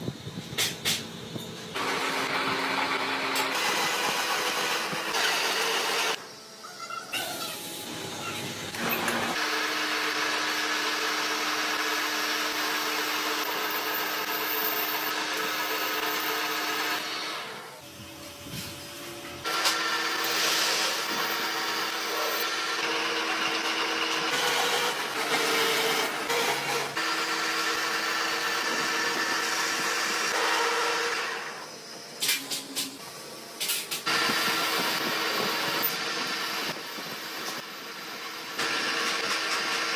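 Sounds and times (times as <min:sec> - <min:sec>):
power tool motor hum: 0:01.8 - 0:06.2, 0:08.7 - 0:33.0.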